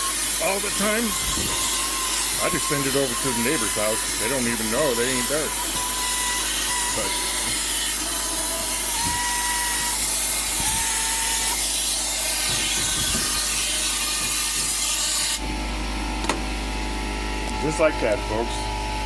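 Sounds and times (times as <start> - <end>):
wavering whistle: 5.7 - 7.1.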